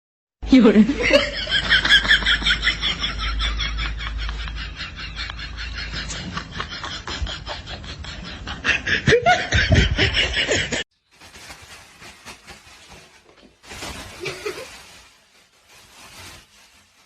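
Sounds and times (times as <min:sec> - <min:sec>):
person laughing loudly: 0:00.9 - 0:10.8
faint rustling: 0:11.2 - 0:17.0.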